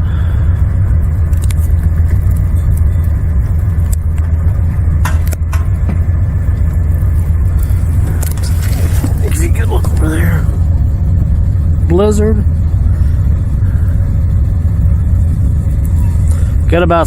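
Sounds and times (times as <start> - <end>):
car cabin rumble: 0.0 - 17.0.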